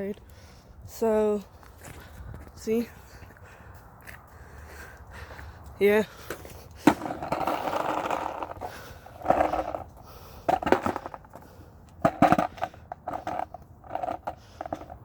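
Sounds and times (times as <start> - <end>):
skateboard wheels rolling: 5.9 - 15.0
skateboard clacks: 6.2 - 15.0.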